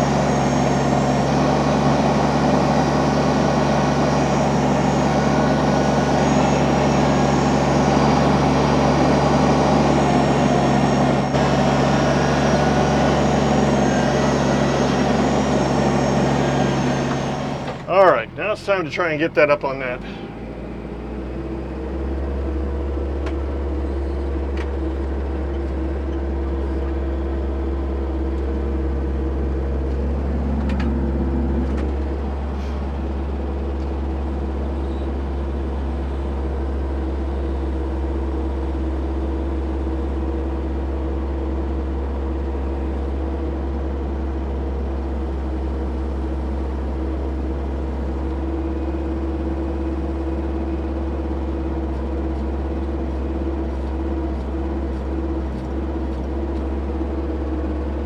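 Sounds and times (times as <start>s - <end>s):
machine engine at high revs: 0.0s - 22.1s.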